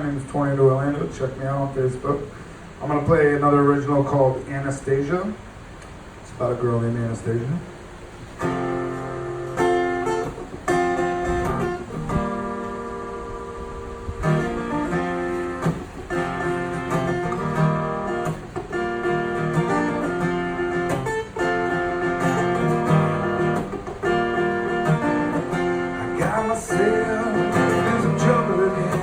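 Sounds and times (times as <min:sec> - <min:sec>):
acoustic guitar strumming chords: 0:08.3 - 0:29.0.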